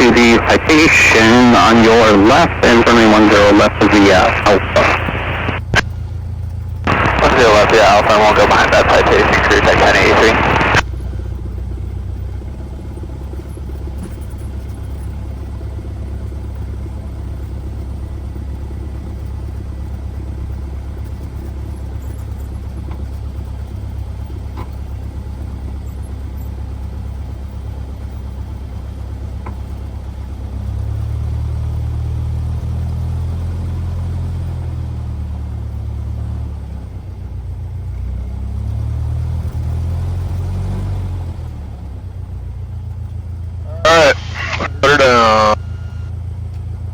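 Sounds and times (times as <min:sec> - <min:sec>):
light aircraft engine droning: 0:00.0 - 0:26.9, 0:42.3 - 0:46.9.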